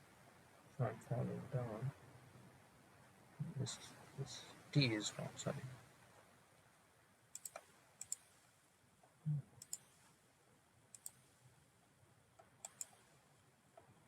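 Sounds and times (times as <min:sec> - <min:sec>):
computer mouse clicks: 0:07.3 - 0:08.6, 0:09.6 - 0:10.1, 0:10.9 - 0:11.4, 0:12.4 - 0:13.2.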